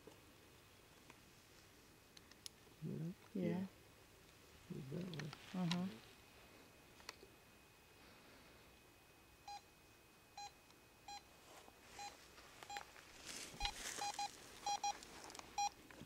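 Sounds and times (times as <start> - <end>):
meter short beeps: 13.6 - 14.9.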